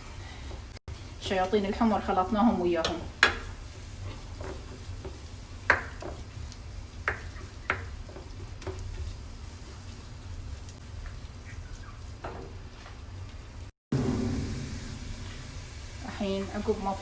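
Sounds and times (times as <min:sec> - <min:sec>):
paste sizzling in oil: 0:00.9 - 0:13.6
steady low hum: 0:13.9 - 0:17.0.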